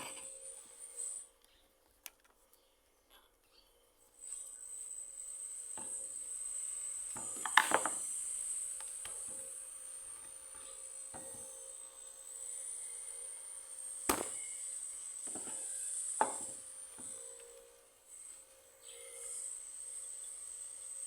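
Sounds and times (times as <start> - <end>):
tools knocking on wood and metal: 7.2 - 8.0, 15.3 - 17.2.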